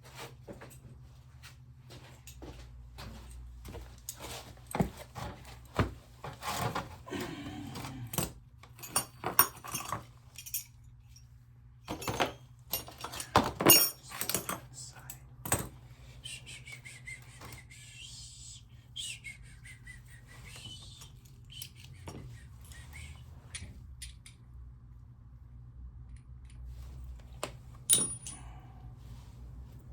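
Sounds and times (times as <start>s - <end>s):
metal tools clinking: 7.8s - 15.8s, 27.8s - 28.7s.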